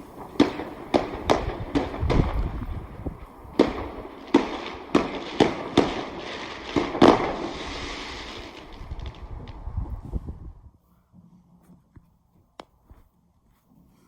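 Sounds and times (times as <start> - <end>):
fireworks bangs: 0.0 - 10.4
crackling hiss of fireworks: 0.0 - 10.7.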